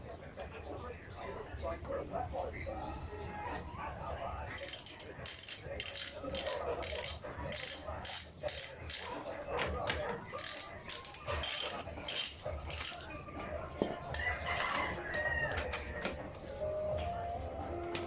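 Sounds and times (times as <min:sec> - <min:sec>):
ratchet wrench clicking: 0:04.6 - 0:09.1, 0:10.4 - 0:13.0.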